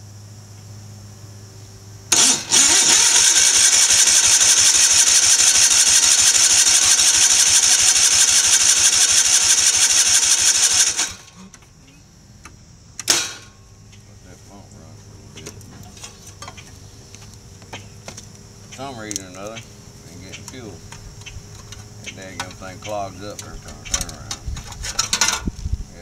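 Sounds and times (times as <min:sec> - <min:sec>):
tractor engine cranking: 0:02.1 - 0:11.6, 0:18.8 - 0:25.5.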